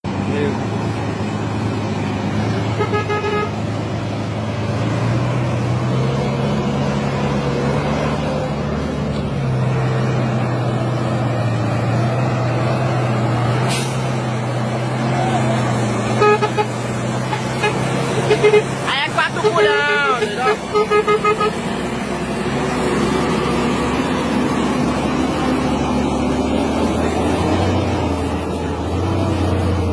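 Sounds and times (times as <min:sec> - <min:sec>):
truck diesel engine pulling: 0:00.0 - 0:29.9
truck horn toot: 0:02.7 - 0:03.6, 0:16.1 - 0:21.7.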